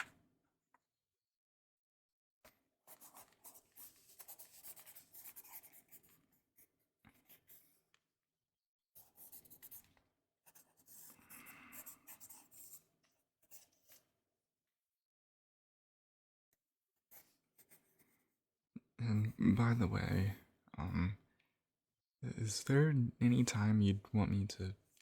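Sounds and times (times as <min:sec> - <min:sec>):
pen scribbling on paper: 0:02.9 - 0:07.6, 0:10.5 - 0:12.8.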